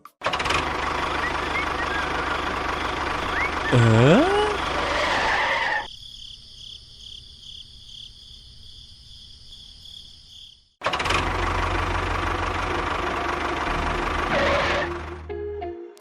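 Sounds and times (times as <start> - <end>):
engine chugging: 0.2 - 5.9, 10.8 - 15.3.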